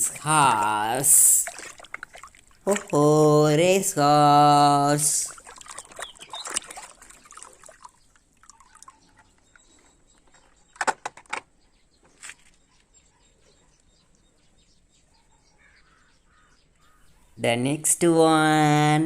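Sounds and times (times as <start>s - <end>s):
plastic toys clicking: 10.4s - 11.5s.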